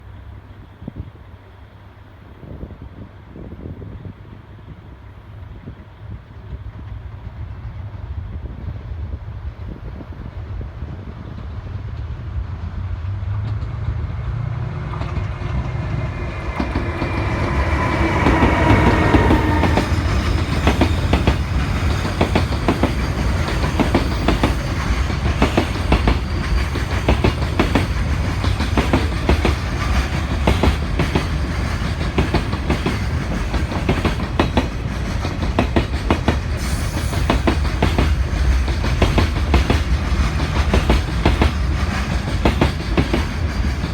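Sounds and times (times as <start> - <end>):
freight train rumble: 0.0 - 43.9
locomotive tone: 13.4 - 34.4.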